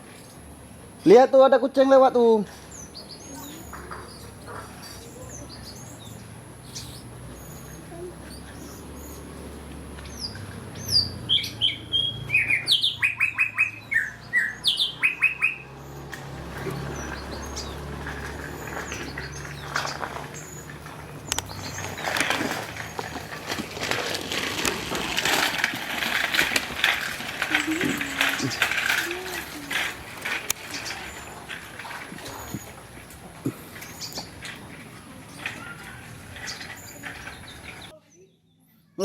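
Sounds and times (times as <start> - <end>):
bird chirping: 2.6 - 23.3
rustling noise: 16.3 - 37.9.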